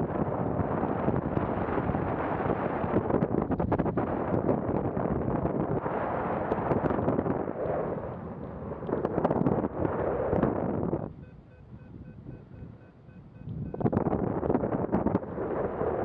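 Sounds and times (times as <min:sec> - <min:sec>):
wind buffeting microphone: 0:00.0 - 0:16.0
faint short beeps: 0:11.0 - 0:14.0.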